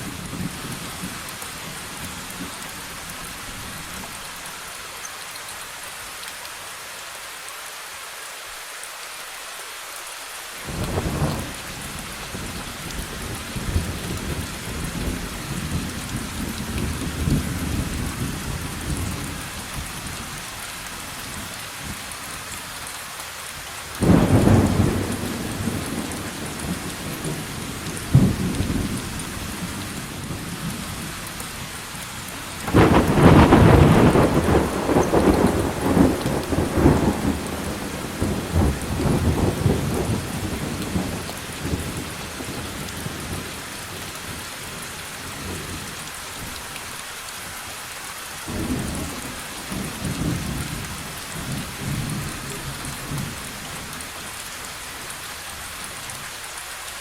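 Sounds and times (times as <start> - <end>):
steady rain: 0.0 - 57.0
sharp thunderclap: 24.0 - 27.4, 32.7 - 41.8
thunder rumbling: 24.0 - 30.7, 32.6 - 43.5.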